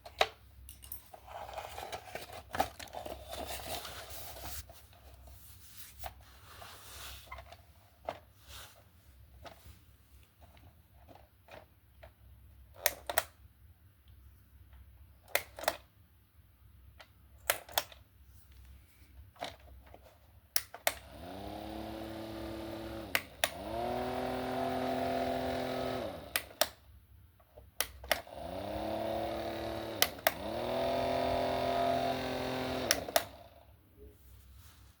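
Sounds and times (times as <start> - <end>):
small electric fan humming: 20.8 - 27.0, 27.8 - 33.8.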